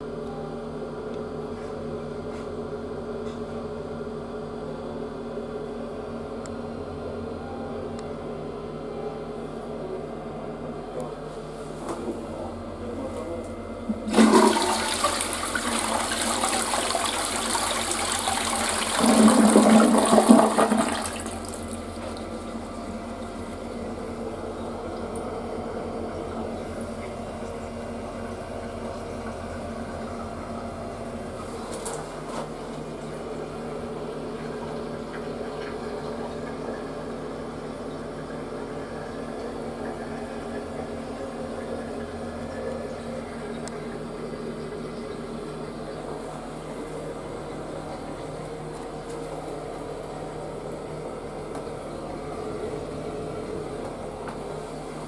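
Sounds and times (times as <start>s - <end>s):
toilet flushing: 11.5s - 55.0s
toilet tank refilling: 11.9s - 55.0s.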